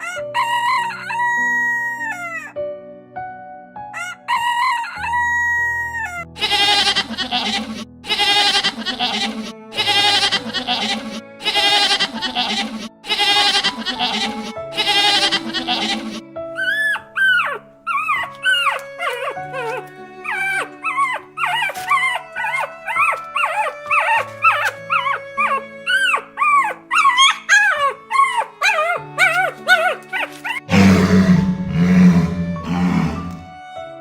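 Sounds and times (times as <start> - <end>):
background music with held notes: 0.0 - 34.0
puppies whimpering and yipping: 6.1 - 30.7.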